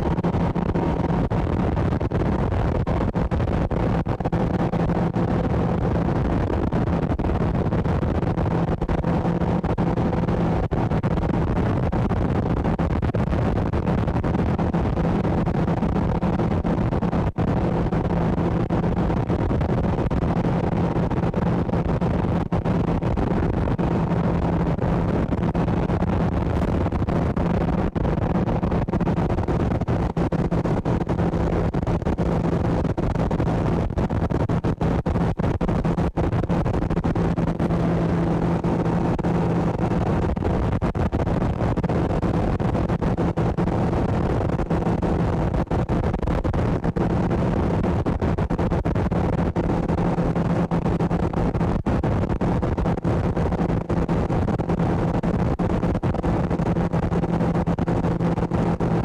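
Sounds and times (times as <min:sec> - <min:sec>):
boat motor running: 0:34.6 - 0:40.4.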